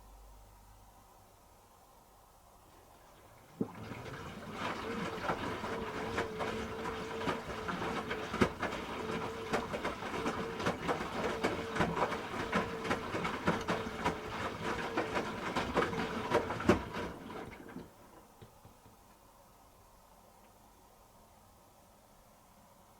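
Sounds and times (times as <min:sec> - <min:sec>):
washing machine running: 0:02.8 - 0:18.9.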